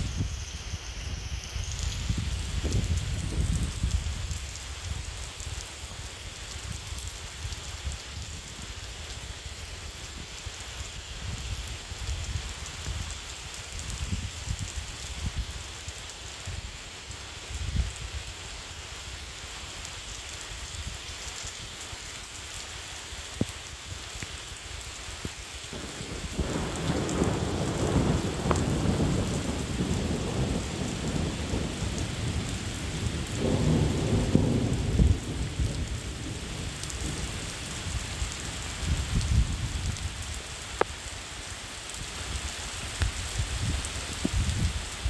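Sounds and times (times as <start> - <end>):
steady rain: 0.0 - 45.0
thunder rumbling: 25.7 - 39.8.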